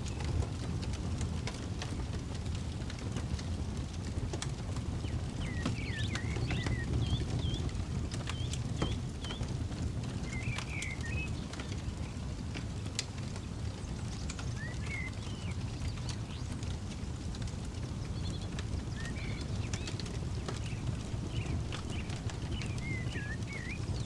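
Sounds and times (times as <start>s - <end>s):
campfire crackling: 0.0s - 24.0s
birds chirping: 5.0s - 12.2s, 13.6s - 24.0s.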